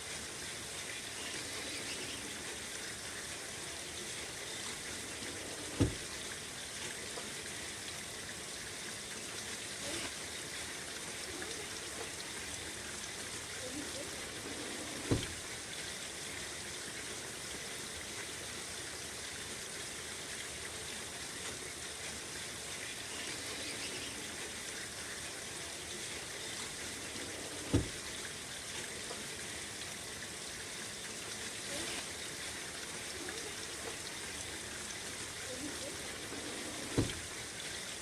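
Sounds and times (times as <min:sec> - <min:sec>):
steady rain: 0:00.0 - 0:38.0
screen door thumps: 0:05.4 - 0:06.2, 0:14.6 - 0:15.5, 0:27.5 - 0:28.1, 0:36.7 - 0:37.4.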